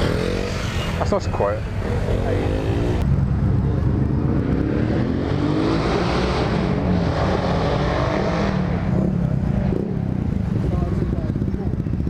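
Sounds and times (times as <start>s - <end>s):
vehicle accelerating past: 3.8s - 10.1s.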